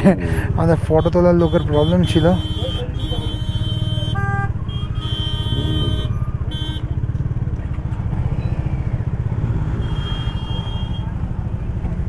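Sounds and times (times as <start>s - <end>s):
vehicle engine running: 0.0s - 12.0s
horn-like tones: 1.0s - 6.9s.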